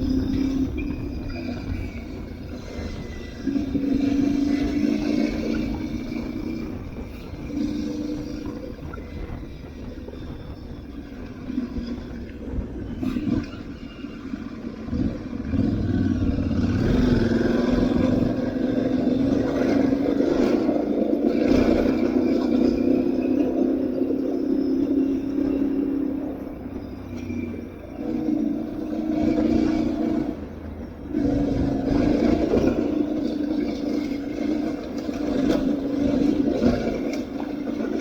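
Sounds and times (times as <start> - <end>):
motorcycle engine running: 13.2 - 37.3.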